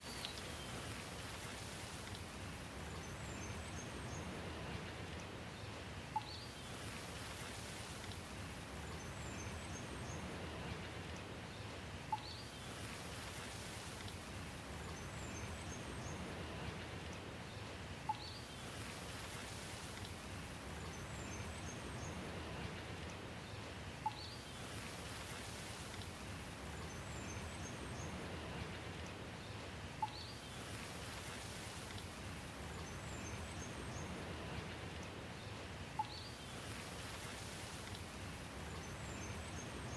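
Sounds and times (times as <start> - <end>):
steady rain: 0.0 - 39.9
faint high bird chirps: 36.0 - 36.4.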